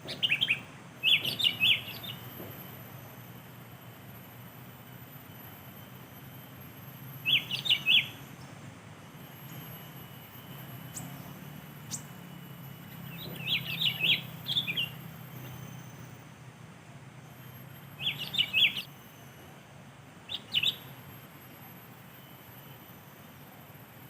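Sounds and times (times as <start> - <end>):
bulbul singing: 0.0 - 3.2, 7.1 - 8.5, 9.2 - 16.2, 17.3 - 19.3, 20.3 - 21.1.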